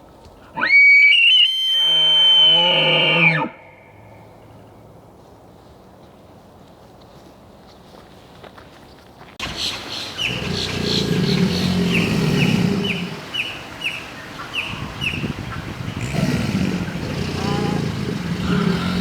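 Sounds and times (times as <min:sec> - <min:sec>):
bird chirping: 0:09.4 - 0:19.0.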